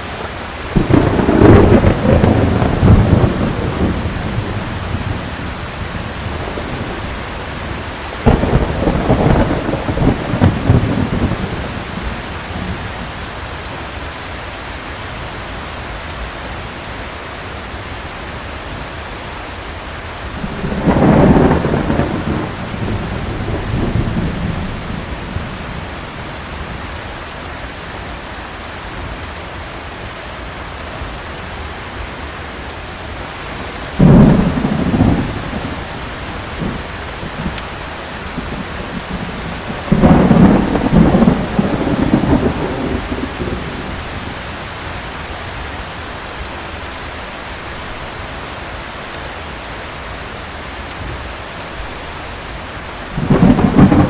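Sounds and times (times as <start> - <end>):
thunder rumbling: 0.0 - 14.4, 20.2 - 29.2, 32.5 - 48.4, 50.4 - 54.0
heavy rain: 0.0 - 54.0.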